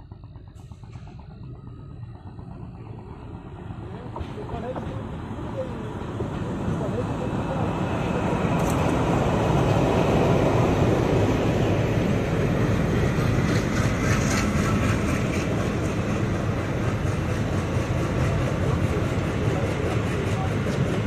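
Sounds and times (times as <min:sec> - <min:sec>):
diesel locomotive engine: 0:00.0 - 0:21.0.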